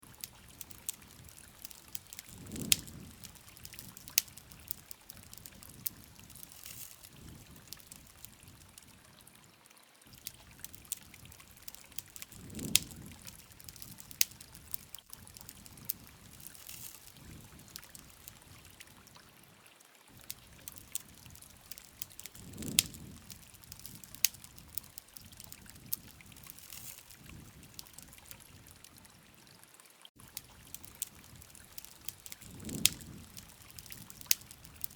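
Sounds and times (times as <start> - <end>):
campfire crackling and popping: 0.0 - 9.3, 10.1 - 19.3, 20.1 - 29.3, 30.2 - 34.9
soft hiss: 0.2 - 8.7, 10.2 - 18.5.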